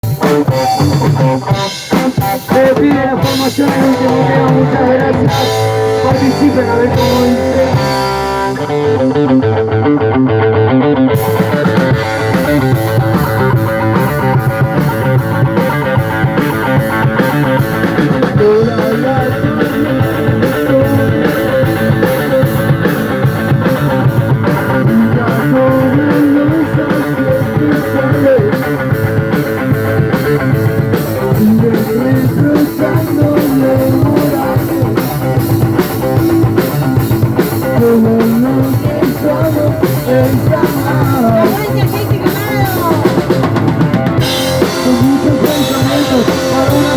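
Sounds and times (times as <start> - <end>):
drum kit: 0.0 - 10.1, 11.1 - 46.9
electric guitar: 0.0 - 46.9
rock and roll band playing: 0.0 - 46.9.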